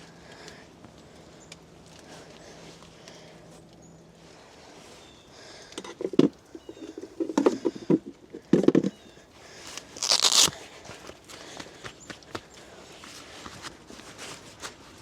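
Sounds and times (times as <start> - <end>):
footsteps crunching in leaf litter: 9.6 - 11.5.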